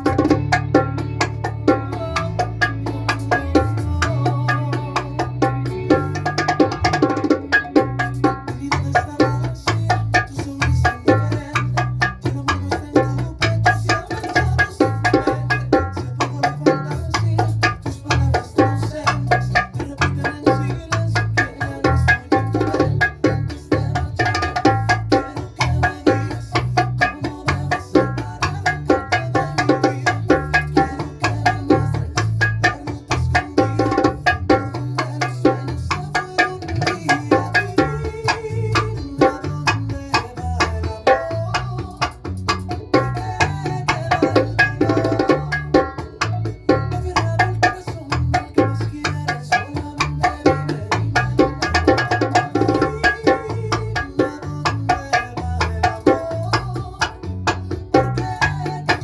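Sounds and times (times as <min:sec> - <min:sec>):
bongos played with hands: 0:00.0 - 0:59.0
recorded song with bass and guitar: 0:00.0 - 0:59.0.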